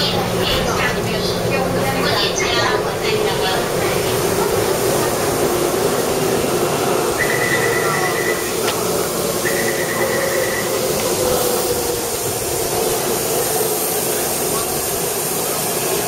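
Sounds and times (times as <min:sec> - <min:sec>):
train running: 0:00.0 - 0:16.0.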